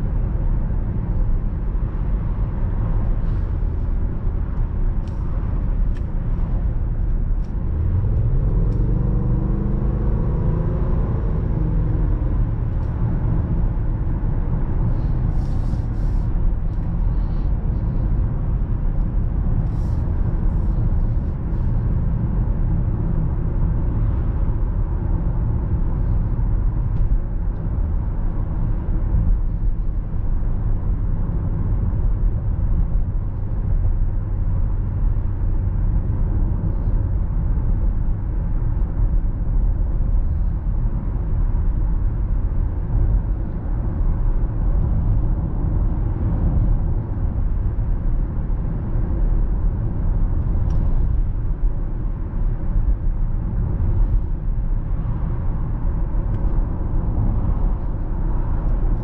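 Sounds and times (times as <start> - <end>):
car engine deep drone: 0.0 - 59.0.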